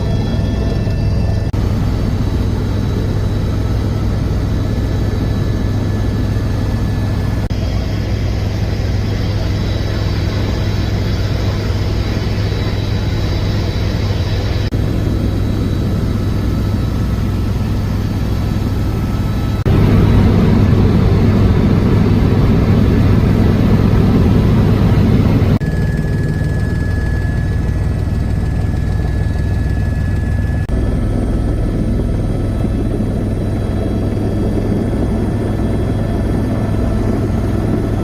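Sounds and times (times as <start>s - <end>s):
helicopter engine and rotor drone: 0.0s - 38.0s.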